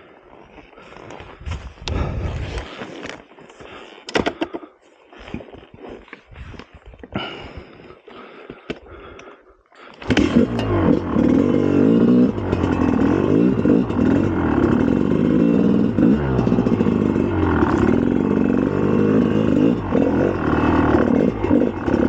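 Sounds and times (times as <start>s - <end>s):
two-stroke motorcycle engine revving: 10.0s - 22.0s.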